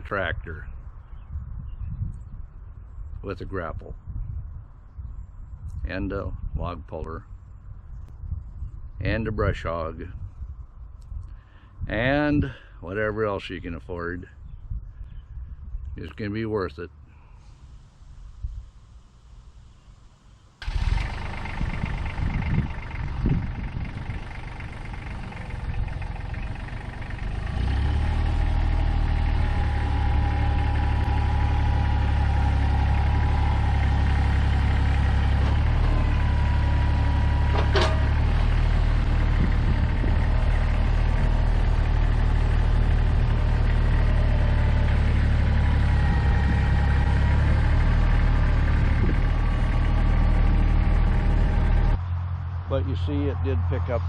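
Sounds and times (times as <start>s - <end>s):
tractor engine running: 17.4s - 54.0s
hydraulic whine: 29.4s - 40.3s
sharp metal clank: 37.5s - 38.2s.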